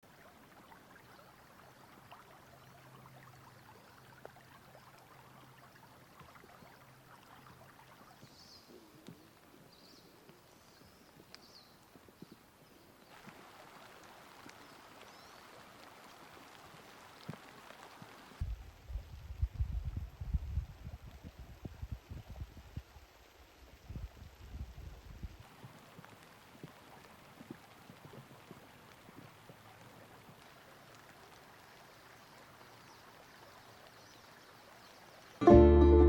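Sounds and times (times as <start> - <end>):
faint ticks: 8.2 - 13.4.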